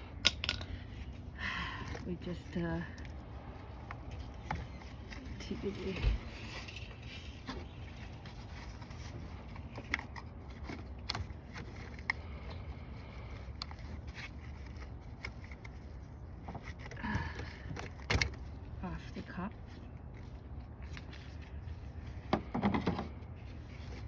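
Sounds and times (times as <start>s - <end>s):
tools clicking and tapping: 0.1s - 0.8s.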